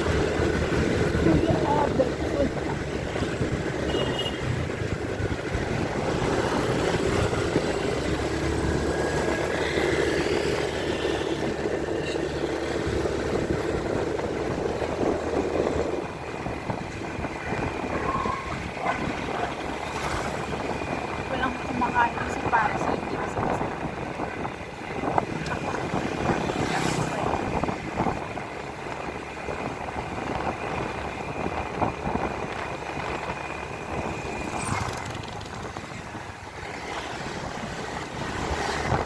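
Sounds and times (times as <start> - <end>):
motorcycle engine running: 0.0 - 39.0
road noise: 0.0 - 39.0.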